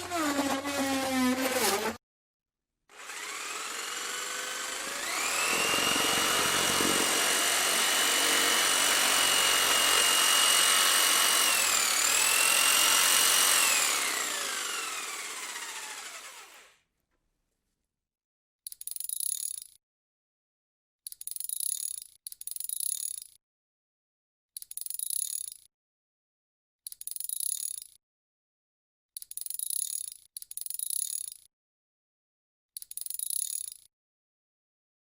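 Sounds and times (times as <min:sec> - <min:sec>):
power tool motor whining: 0:00.0 - 0:02.0, 0:02.9 - 0:16.7.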